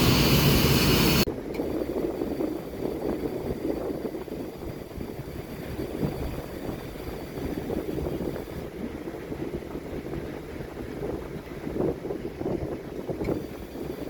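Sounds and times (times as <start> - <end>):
low rumble: 0.0 - 3.9
wind buffeting microphone: 0.0 - 14.0.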